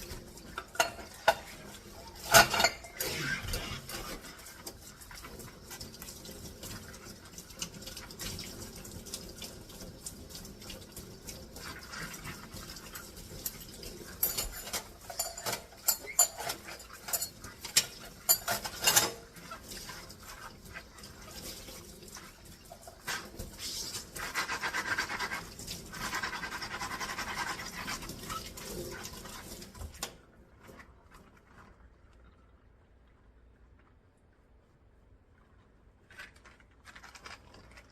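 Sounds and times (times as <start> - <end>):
tap water running: 0.0 - 33.1
dishes and cutlery clinking: 0.5 - 4.2, 12.6 - 20.4.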